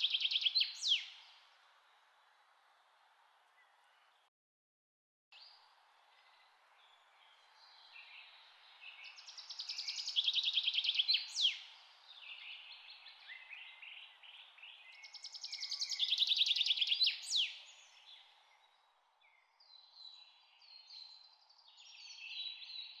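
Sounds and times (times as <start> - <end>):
soft bird chirps: 0.0 - 2.2, 5.4 - 23.0
background hiss: 5.4 - 19.2.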